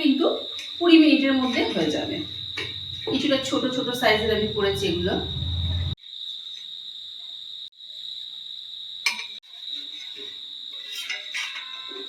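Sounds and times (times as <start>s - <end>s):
cricket trilling: 0.7s - 6.0s.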